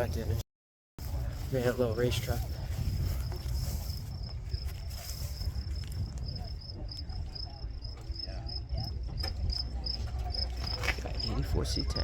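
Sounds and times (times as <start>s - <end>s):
faint distant voices: 1.0s - 12.0s.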